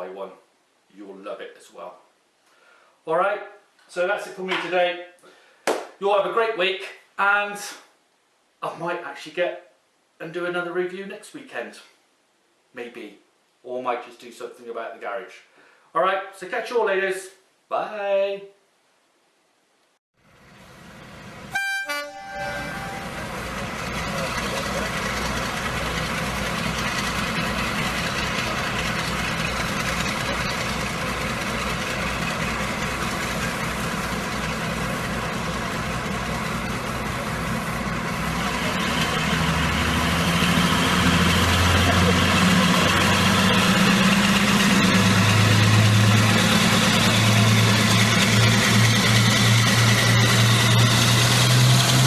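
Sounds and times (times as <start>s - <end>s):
train mechanical rumble: 20.2s - 52.0s
low engine hum: 20.3s - 52.0s
train horn toot: 21.5s - 23.5s.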